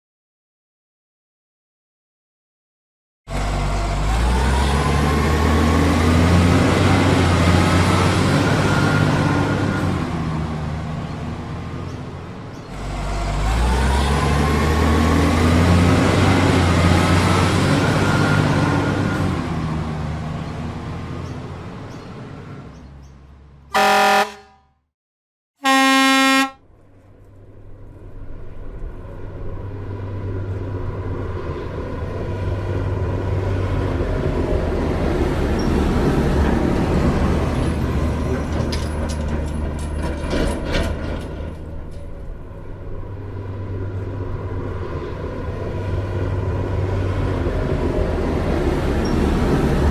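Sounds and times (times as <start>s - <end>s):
truck engine rumbling: 3.3s - 24.6s, 25.6s - 49.9s
loud horn honks: 23.7s - 24.7s, 25.6s - 26.6s.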